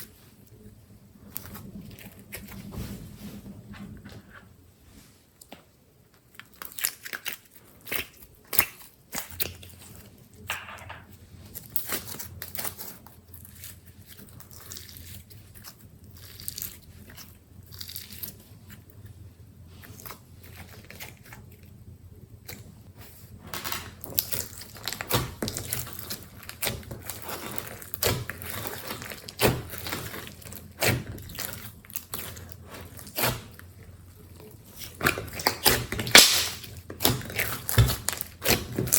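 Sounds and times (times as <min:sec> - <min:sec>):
slime squished by hand: 0:34.3 - 0:38.9.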